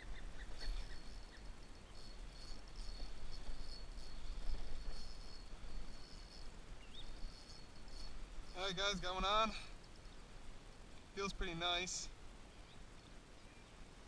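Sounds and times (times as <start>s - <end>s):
insect trilling: 0.0s - 10.8s.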